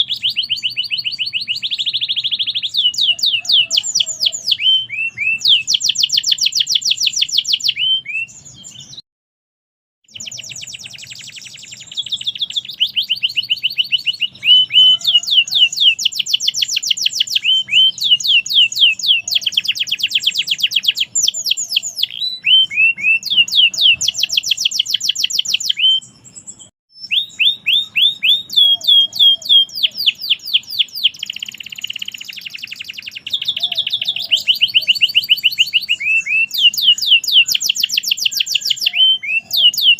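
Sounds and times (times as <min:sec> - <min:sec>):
canary singing trills: 0:00.0 - 0:09.0, 0:10.1 - 0:39.9.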